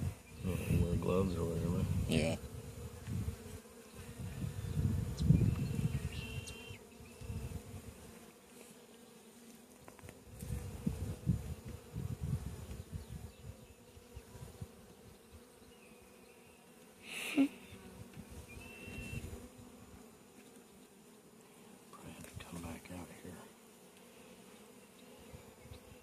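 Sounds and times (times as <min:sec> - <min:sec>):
bees buzzing: 0:00.0 - 0:26.0
low rumbling on microphone: 0:04.1 - 0:06.2.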